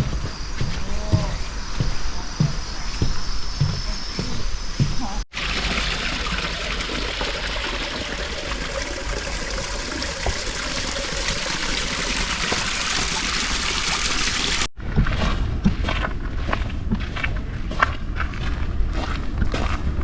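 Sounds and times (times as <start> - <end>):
stream water trickling: 5.3 - 14.7.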